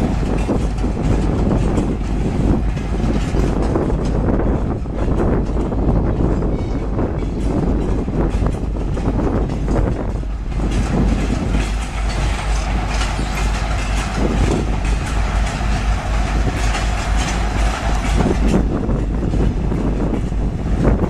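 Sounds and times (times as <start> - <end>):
wheels clacking over rail joints: 0.0 - 21.0.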